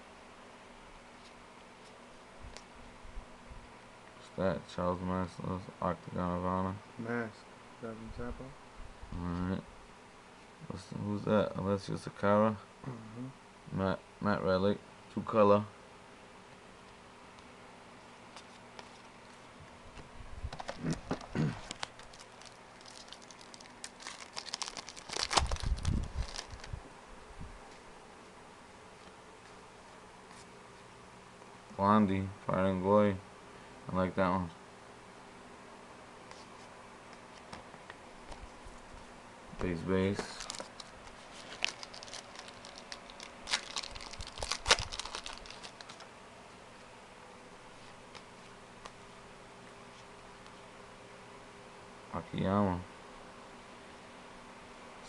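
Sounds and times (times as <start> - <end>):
trading cards clicking and rustling: 20.5 - 26.7, 39.6 - 46.1
wrapper tearing and crinkling: 20.6 - 26.8, 40.2 - 46.0.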